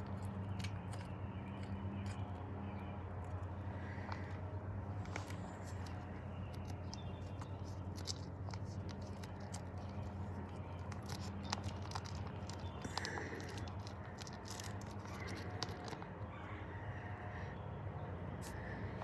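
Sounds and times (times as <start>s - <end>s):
low electrical hum: 0.0s - 19.0s
packaging crackling: 5.0s - 16.2s.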